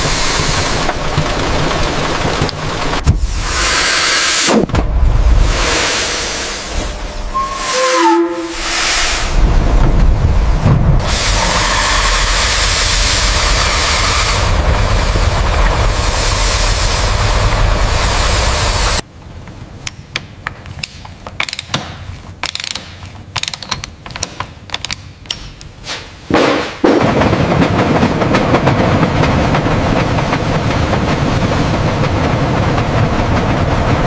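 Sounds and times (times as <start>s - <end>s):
loud rushing mechanical noise: 0.0s - 7.3s, 8.5s - 19.0s
sharp mechanical clicks and knocks: 19.5s - 25.8s.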